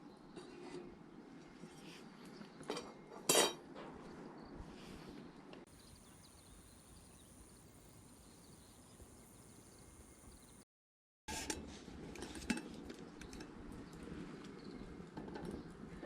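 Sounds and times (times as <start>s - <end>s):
faint steady hiss: 5.7s - 10.6s.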